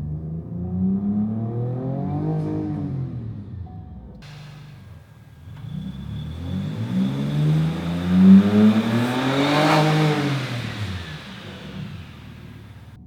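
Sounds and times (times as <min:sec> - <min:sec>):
truck engine accelerating: 0:04.2 - 0:13.0.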